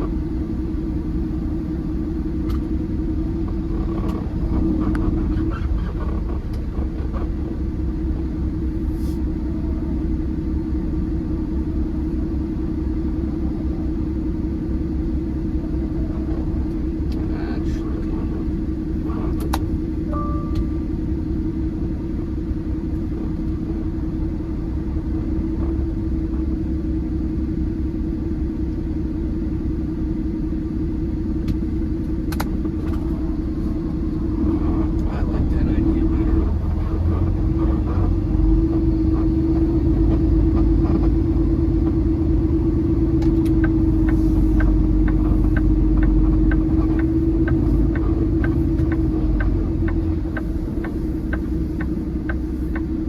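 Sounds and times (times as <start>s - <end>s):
truck diesel engine drone: 0.0s - 53.0s
brief beep: 20.1s - 20.8s.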